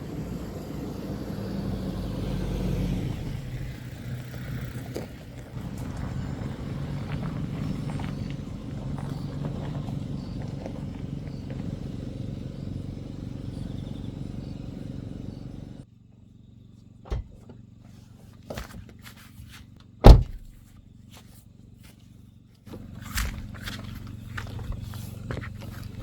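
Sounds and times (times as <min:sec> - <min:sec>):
car engine and road hum: 0:00.0 - 0:26.0
loud thud: 0:20.0 - 0:20.6.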